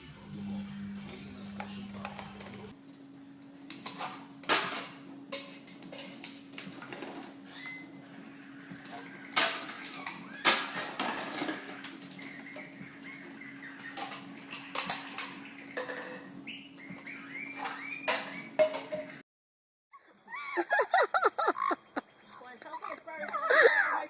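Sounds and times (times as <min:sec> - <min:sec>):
steady low hum: 0:00.0 - 0:10.5
faint high chirping squeaks: 0:07.5 - 0:08.0
sharp knocks and clattering: 0:08.7 - 0:19.2.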